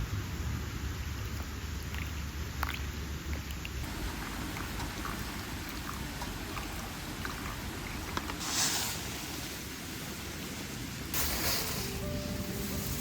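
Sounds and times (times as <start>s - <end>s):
rain-like noise: 0.0s - 13.0s
brief louder hiss: 8.4s - 9.1s, 11.2s - 13.0s.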